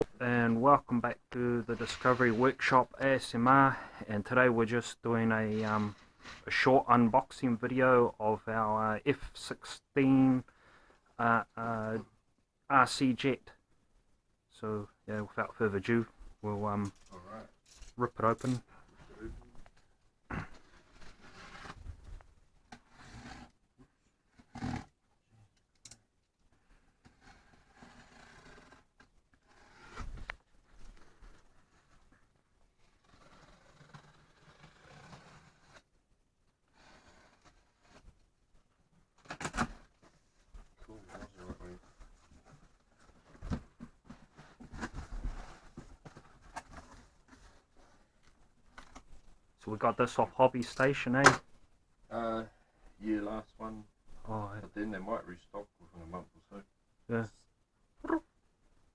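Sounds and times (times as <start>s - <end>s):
cardboard scraping: 20.3s - 22.1s, 27.0s - 32.1s, 32.8s - 35.9s, 41.1s - 48.1s.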